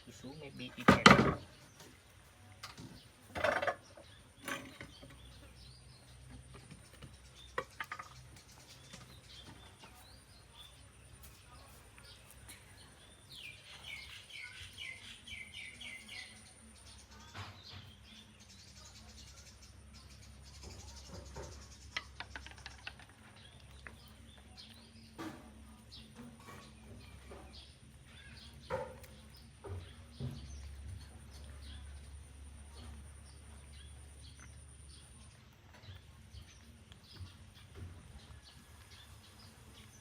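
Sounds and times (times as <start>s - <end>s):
sharp clicks and knocks: 20.6s - 24.0s.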